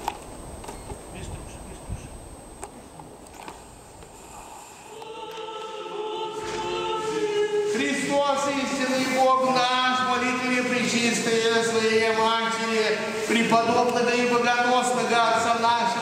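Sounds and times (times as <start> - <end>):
choir singing chant: 4.8 - 10.2.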